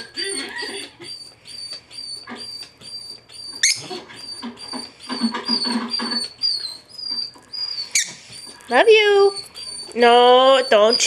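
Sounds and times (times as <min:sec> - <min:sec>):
dog squealing: 0:00.0 - 0:11.0
dog whining and whimpering: 0:00.0 - 0:11.0.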